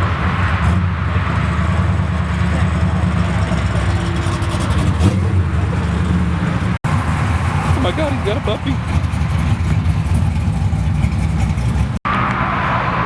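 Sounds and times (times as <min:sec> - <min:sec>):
car engine idling: 0:00.0 - 0:12.1.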